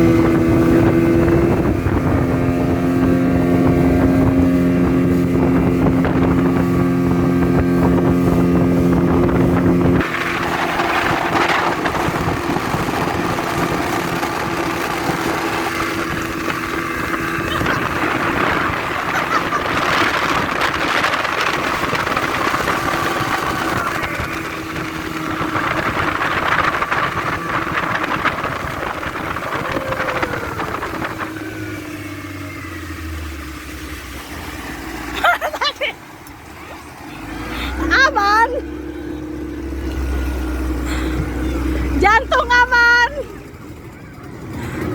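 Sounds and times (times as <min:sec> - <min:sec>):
rushing wind and water: 0:00.0 - 0:43.7
motorboat engine running: 0:00.0 - 0:44.9.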